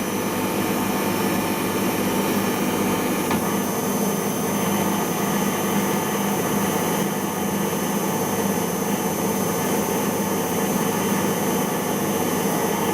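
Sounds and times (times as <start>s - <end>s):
motor hum and whine: 0.0s - 12.9s
washing machine drum spinning: 2.4s - 3.7s.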